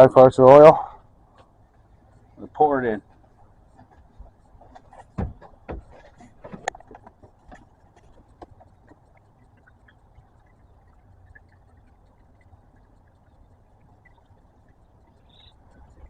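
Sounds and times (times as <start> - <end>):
oil pouring ticks: 5.5 - 16.0.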